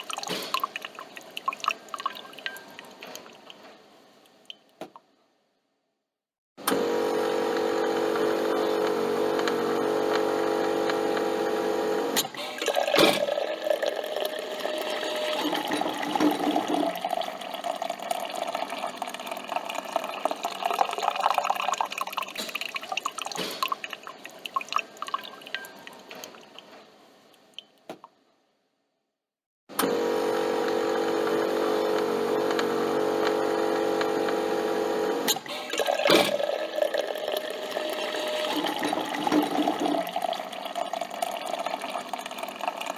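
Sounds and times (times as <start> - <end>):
liquid dripping into a cup: 0.0 - 3.6, 12.6 - 26.7
coffee machine humming: 6.6 - 22.1, 29.7 - 42.9.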